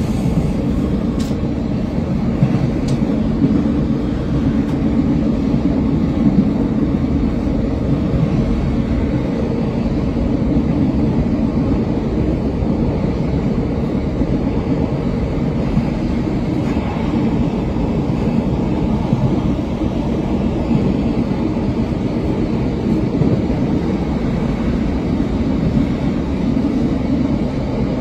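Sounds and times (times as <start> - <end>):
train low rumble: 0.0 - 28.0.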